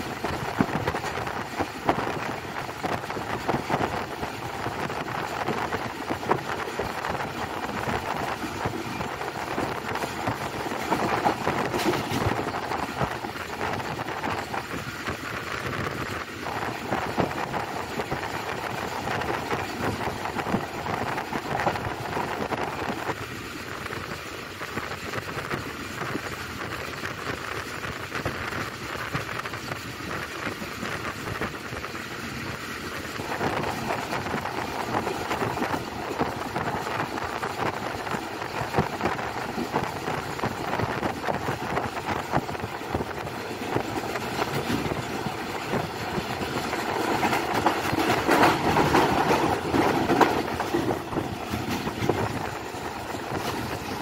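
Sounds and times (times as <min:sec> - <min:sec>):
train rail noise: 0:00.0 - 0:54.0.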